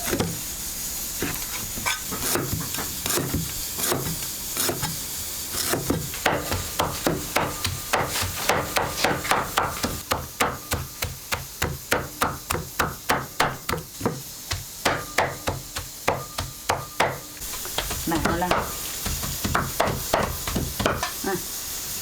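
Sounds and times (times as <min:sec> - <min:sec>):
rapid knocks on hard surface: 0:05.9 - 0:21.1.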